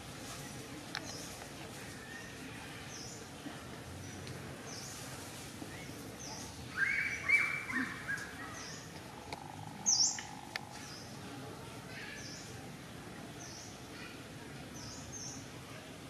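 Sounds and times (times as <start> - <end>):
birds chirping: 5.7 - 15.5.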